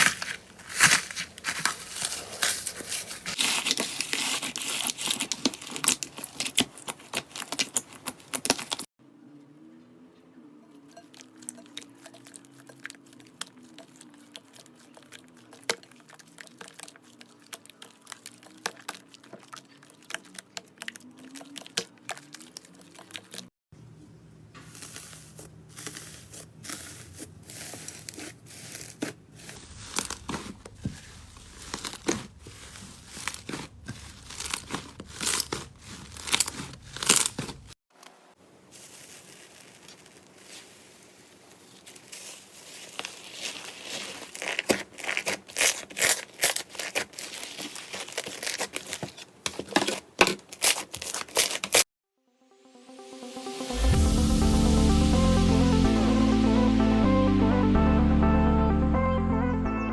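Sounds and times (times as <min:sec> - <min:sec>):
slime crackling and popping: 0:00.0 - 0:08.9, 0:24.7 - 0:37.8, 0:38.8 - 0:51.8.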